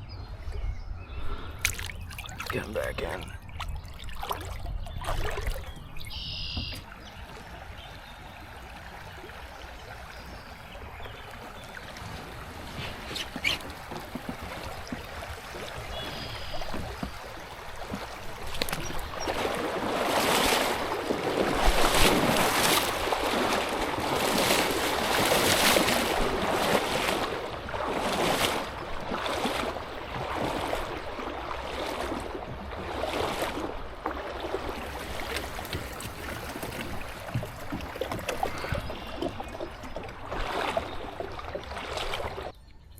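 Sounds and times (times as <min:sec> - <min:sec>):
paddle splashing in water: 0:01.2 - 0:42.6
bird chirps: 0:05.6 - 0:06.9.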